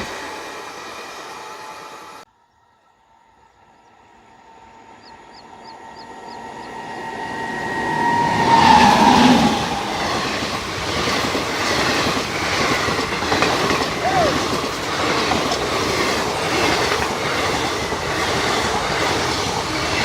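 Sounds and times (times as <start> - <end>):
steady tone from train: 0.0 - 20.0
train passing at speed: 0.0 - 20.0
wheels clattering over rail joints: 9.4 - 20.0.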